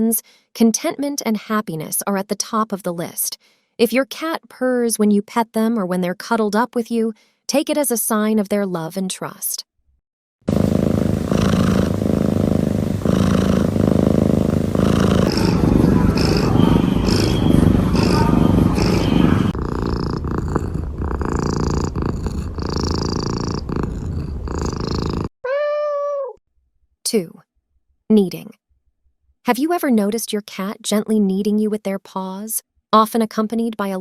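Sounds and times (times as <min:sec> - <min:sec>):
cat purring: 0:10.5 - 0:25.3
cat meow: 0:25.4 - 0:26.4.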